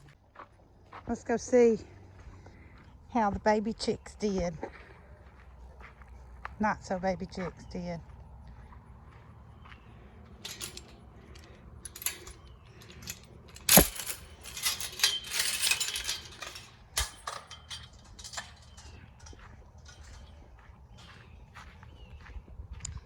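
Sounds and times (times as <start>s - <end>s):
metal gate clinking and rattling: 10.3s - 21.3s.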